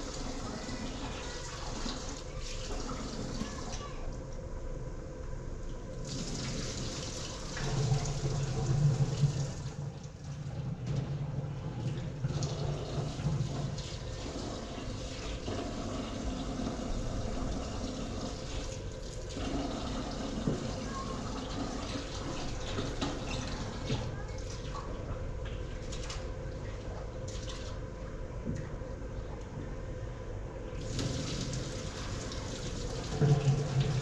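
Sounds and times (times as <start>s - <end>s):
water running and splashing: 30.8s - 34.0s.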